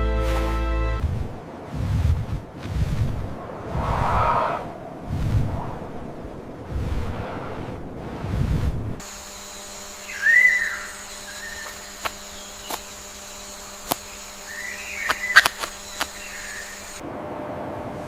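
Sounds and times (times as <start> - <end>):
steady hum: 9.0 - 17.0
whistled call: 9.9 - 12.9, 13.9 - 17.0
sharp clicks: 10.9 - 17.0.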